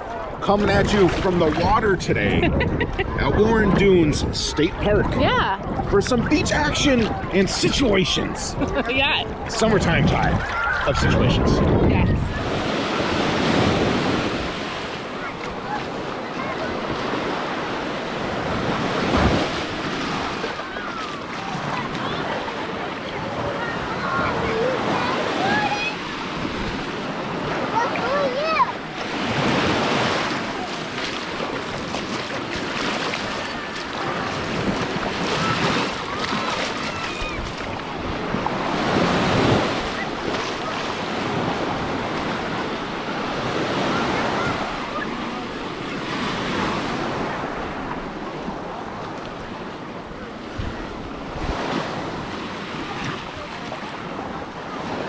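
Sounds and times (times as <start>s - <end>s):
waves washing and sloshing: 0.0s - 55.0s
wind buffeting microphone: 0.2s - 17.4s, 18.2s - 45.1s
wind noise on microphone: 0.8s - 14.7s, 50.1s - 53.2s.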